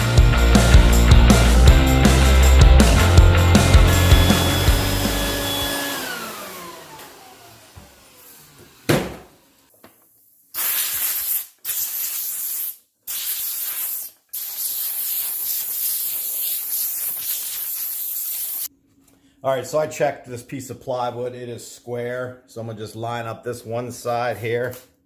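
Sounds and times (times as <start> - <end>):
rock music: 0.0 - 5.7
loud even hiss: 10.6 - 18.7.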